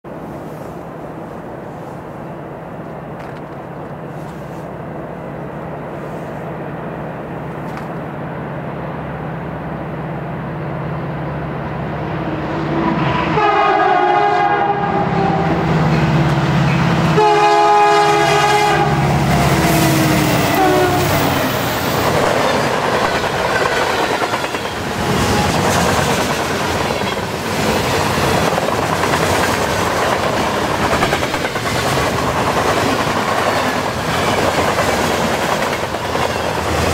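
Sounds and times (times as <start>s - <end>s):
diesel locomotive engines: 0.1s - 36.9s
locomotive horn blasts: 13.1s - 15.6s, 17.1s - 21.5s
wheels clacking over rail joints: 21.2s - 36.9s.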